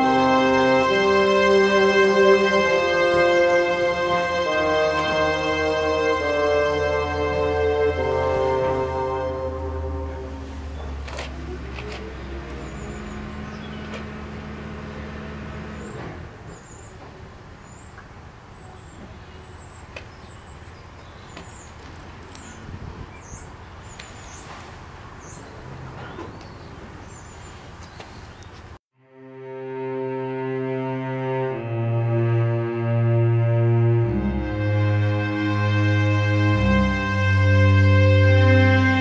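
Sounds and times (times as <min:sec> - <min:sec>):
low steady hum: 0:00.0 - 0:16.1
birds chirping: 0:02.6 - 0:28.8.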